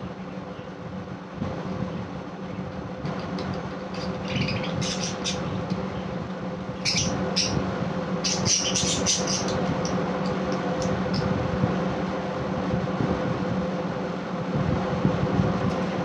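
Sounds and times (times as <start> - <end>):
steady low hum: 0.0 - 16.0
budgerigars chirping: 4.0 - 5.6, 6.8 - 7.6, 8.2 - 9.6.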